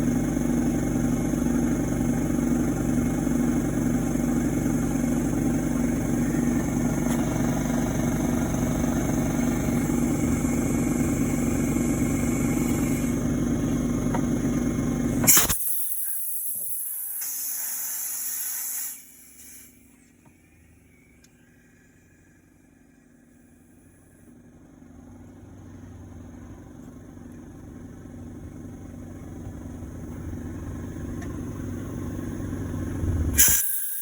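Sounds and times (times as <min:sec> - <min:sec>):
engine running with knock: 0:00.0 - 0:15.5, 0:24.1 - 0:33.4
loud hiss: 0:15.2 - 0:19.8, 0:33.4 - 0:34.0.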